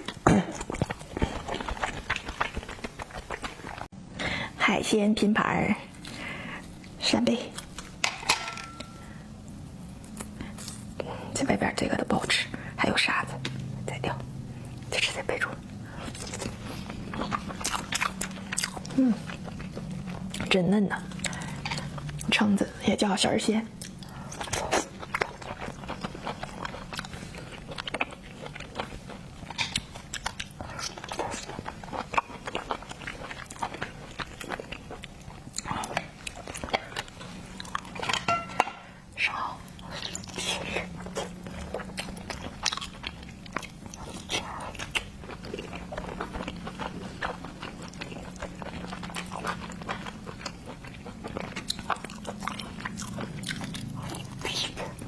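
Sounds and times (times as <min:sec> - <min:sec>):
close chewing with wet smacks: 0:00.0 - 0:03.9, 0:14.6 - 0:22.6, 0:23.8 - 0:38.2, 0:39.6 - 0:55.0.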